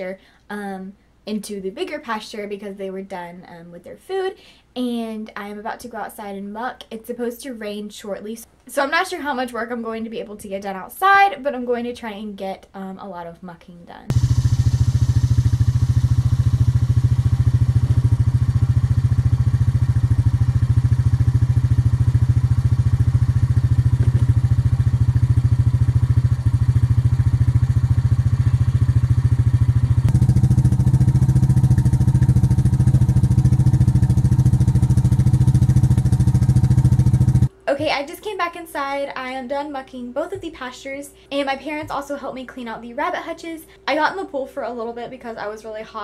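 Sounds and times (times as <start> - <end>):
small engine running: 14.1 - 37.5.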